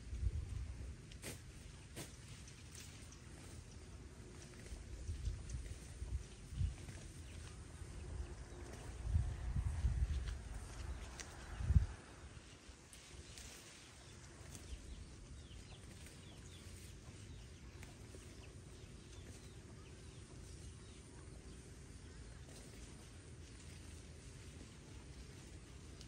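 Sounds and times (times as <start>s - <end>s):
low rumble: 3.4s - 12.5s.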